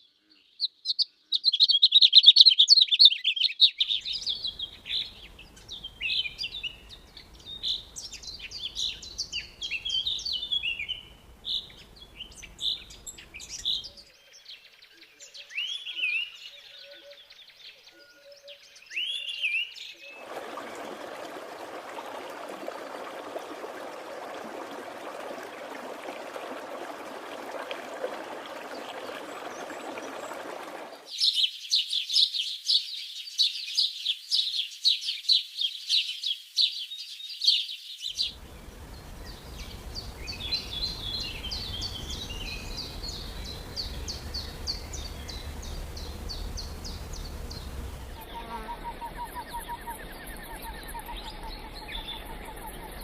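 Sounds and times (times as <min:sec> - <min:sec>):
low hum: 0:38.2 - 0:52.6
soft high bird chirping: 0:38.2 - 0:53.0
steady rushing noise: 0:38.3 - 0:48.2.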